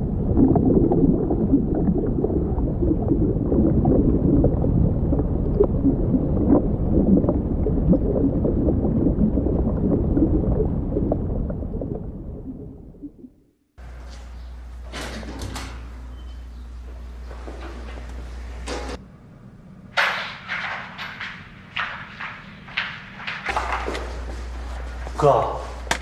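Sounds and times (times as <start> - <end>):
muffled underwater rushing: 0.0 - 13.5
underwater bubbling: 0.0 - 13.6.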